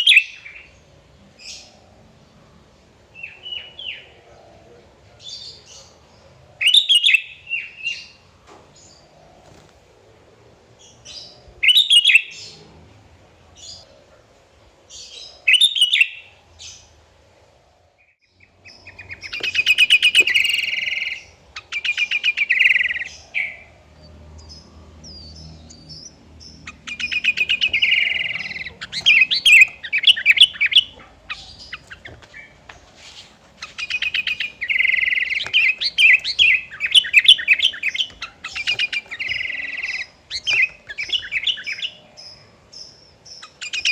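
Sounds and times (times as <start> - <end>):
bulbul singing: 10.8 - 12.6, 14.9 - 16.9, 18.3 - 32.9, 33.6 - 43.9.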